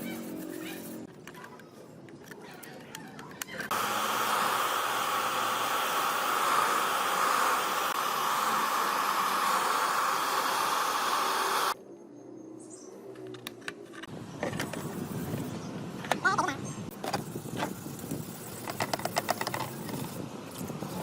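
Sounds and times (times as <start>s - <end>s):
loud hiss: 3.7s - 11.8s.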